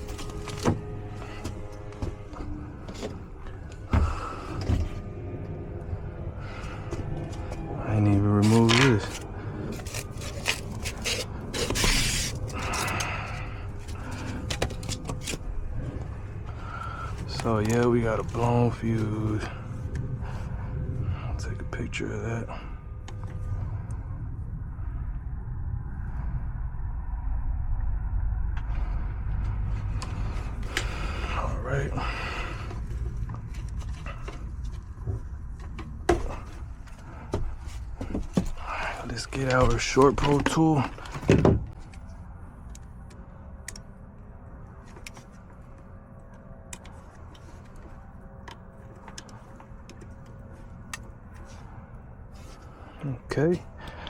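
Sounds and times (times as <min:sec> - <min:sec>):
steady low rumble: 0:00.0 - 0:54.0
scraping: 0:06.4 - 0:19.0.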